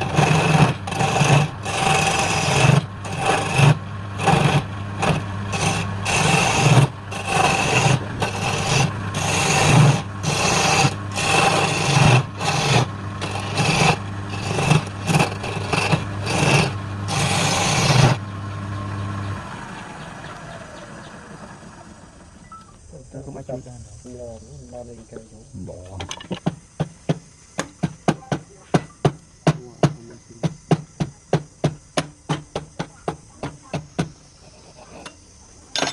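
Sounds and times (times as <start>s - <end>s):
tool scraping spinning wood: 0.0s - 18.3s, 28.8s - 35.9s
lathe motor hum: 0.0s - 22.4s
lathe winding down whine: 0.0s - 22.6s.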